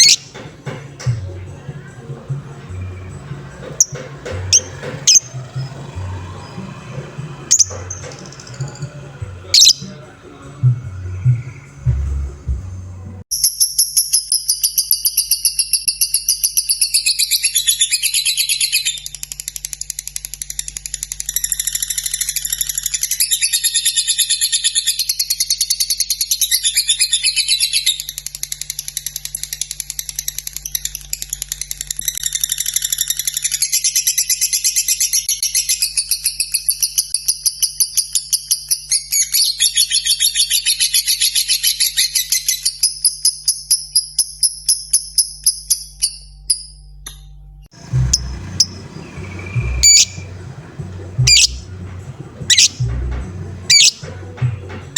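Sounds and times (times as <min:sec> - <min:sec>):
lovebird trilling: 0:00.0 - 0:00.4, 0:02.8 - 0:06.8, 0:07.5 - 0:10.0, 0:47.8 - 0:54.1.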